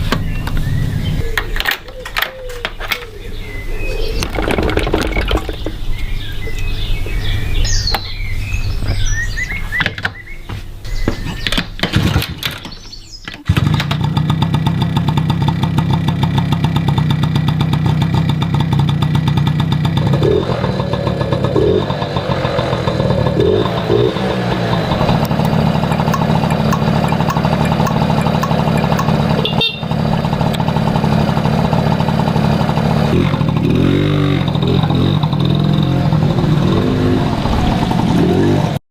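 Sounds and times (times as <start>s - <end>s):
motorcycle engine starting and idling: 0.0s - 8.2s, 13.4s - 38.8s
handling and clattering noises: 4.1s - 6.1s, 9.7s - 14.0s.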